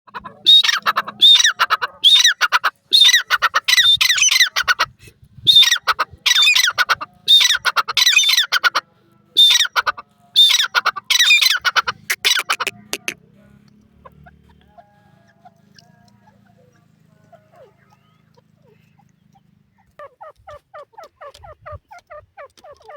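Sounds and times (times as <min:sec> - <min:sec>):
francolin calling: 0:00.1 - 0:04.8, 0:05.5 - 0:08.8, 0:09.4 - 0:13.2.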